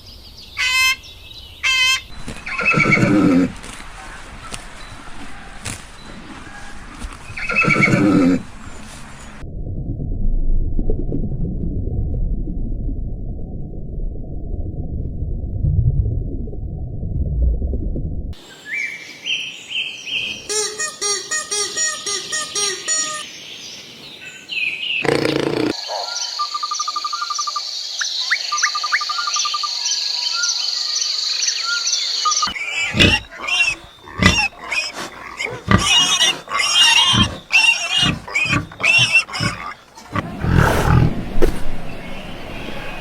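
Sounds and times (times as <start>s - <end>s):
loud irregular animal calls: 32.4s - 41.6s.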